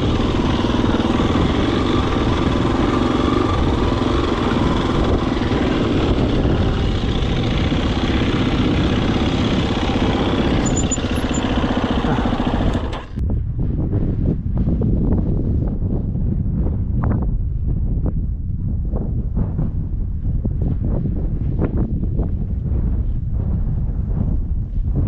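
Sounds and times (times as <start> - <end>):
dirt bike engine running: 0.0 - 13.2
wind on microphone: 0.0 - 25.0.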